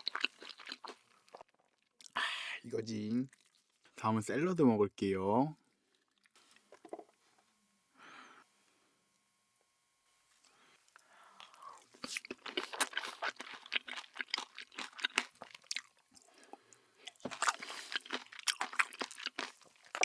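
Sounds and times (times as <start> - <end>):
crunching and chewing vegetables: 0.0 - 2.2, 3.1 - 4.0, 5.6 - 7.2, 10.4 - 20.0.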